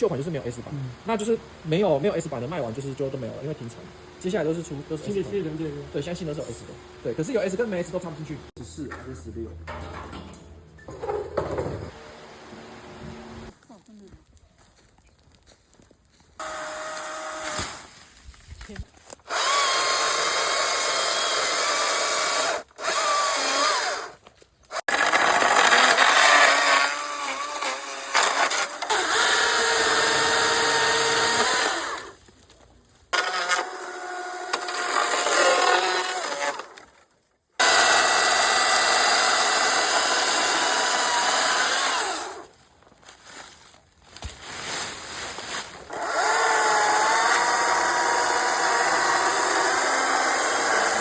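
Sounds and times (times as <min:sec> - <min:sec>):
battery chainsaw whine: 0:16.4 - 0:17.9, 0:19.2 - 0:32.2.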